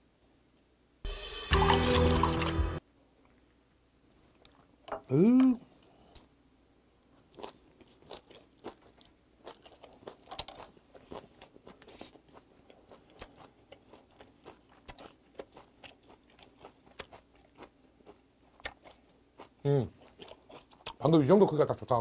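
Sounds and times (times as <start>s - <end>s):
person chewing wet food: 7.1s - 21.6s.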